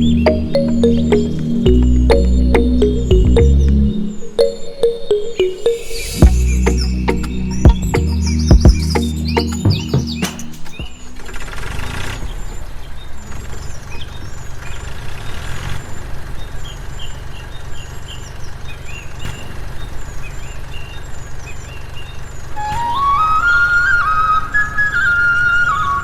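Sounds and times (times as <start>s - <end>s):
small birds chirping: 5.7s - 11.1s, 12.0s - 23.6s.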